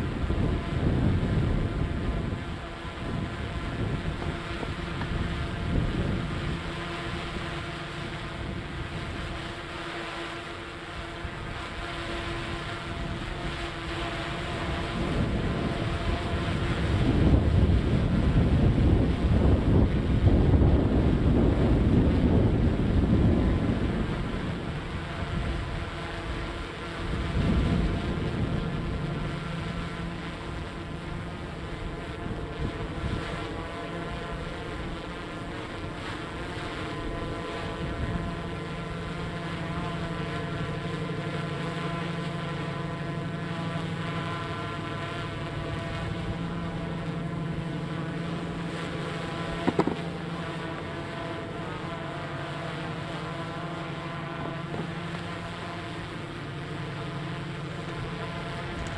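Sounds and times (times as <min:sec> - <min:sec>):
wind buffeting microphone: 0:00.0 - 0:09.7, 0:10.9 - 0:36.0, 0:45.5 - 0:51.7.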